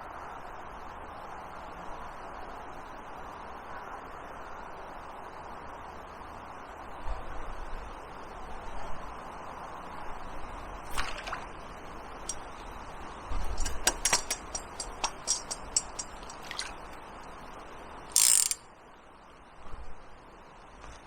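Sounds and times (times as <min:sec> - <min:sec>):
flowing river water: 0:10.9 - 0:12.6, 0:13.6 - 0:17.1
fishing reel clicks: 0:12.3 - 0:12.5, 0:13.6 - 0:16.9, 0:18.1 - 0:18.6
reel rasp: 0:13.6 - 0:17.0, 0:18.1 - 0:18.6.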